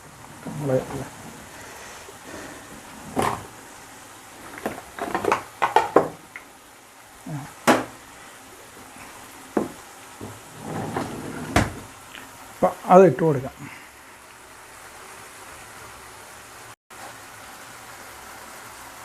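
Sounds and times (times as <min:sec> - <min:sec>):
faint frying sizzle: 0:00.0 - 0:10.8, 0:11.4 - 0:19.0
utensils knocking and clinking: 0:04.4 - 0:06.4.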